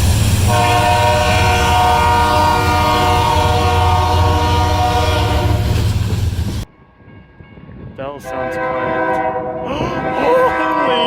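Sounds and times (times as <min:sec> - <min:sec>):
train rumble: 0:00.0 - 0:11.0
locomotive air horn chord: 0:00.4 - 0:05.7, 0:08.2 - 0:11.0.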